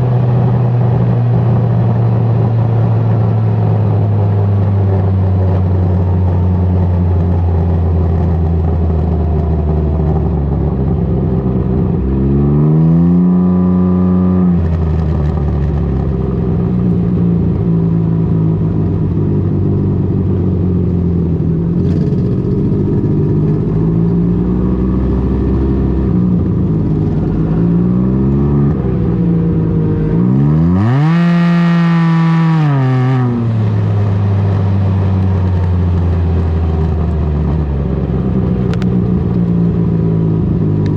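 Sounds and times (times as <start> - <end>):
engine revving: 0.0 - 16.0, 21.6 - 38.9.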